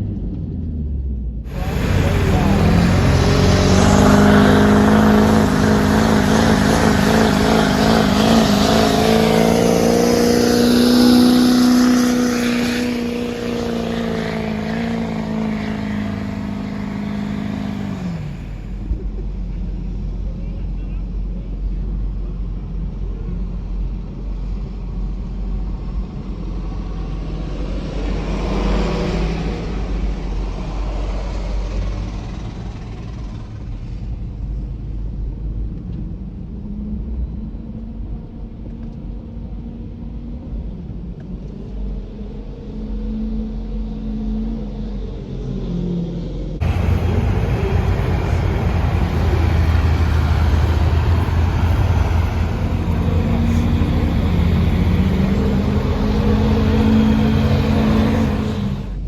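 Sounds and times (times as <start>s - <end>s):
deeper engine rumble: 0.0s - 39.7s, 46.3s - 59.0s
diesel truck engines rumbling: 1.5s - 20.3s, 25.2s - 33.4s, 46.6s - 59.0s.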